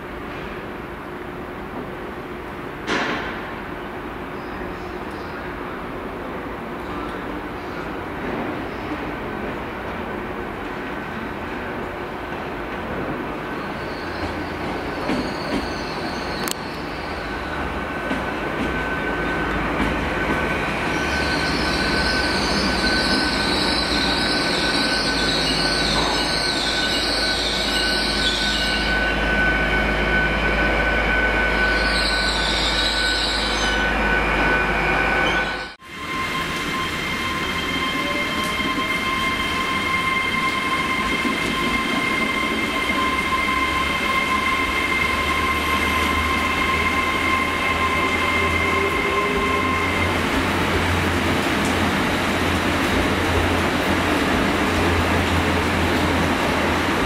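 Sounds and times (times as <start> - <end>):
train rumbling and whining: 0.0 - 57.0
high-pitched wheel squeal: 20.2 - 50.3.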